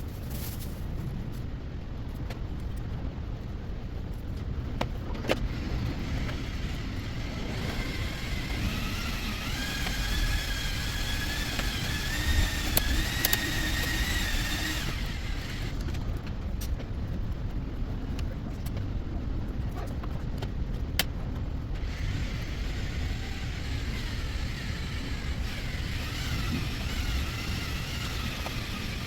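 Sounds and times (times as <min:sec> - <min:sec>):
small motor whining: 0:05.4 - 0:16.2, 0:21.8 - 0:29.0
sharp clicks: 0:07.6 - 0:16.0.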